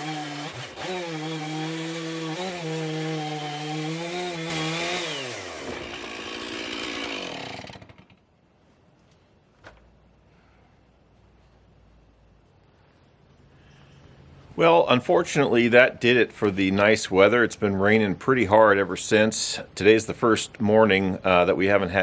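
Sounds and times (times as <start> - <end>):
chainsaw running under load: 0.0 - 8.2.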